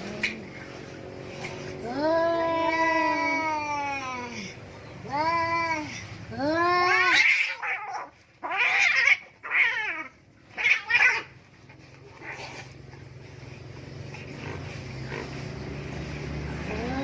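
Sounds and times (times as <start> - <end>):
cats yowling: 1.9 - 12.8.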